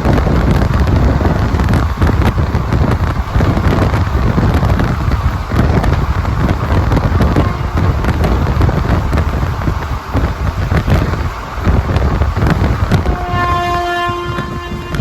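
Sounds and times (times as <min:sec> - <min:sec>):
train rumbling: 0:00.0 - 0:15.0
wheels clicking over rail joints: 0:00.0 - 0:15.0
wind rush: 0:00.0 - 0:15.0
train horn chord: 0:07.4 - 0:08.7, 0:13.0 - 0:15.0.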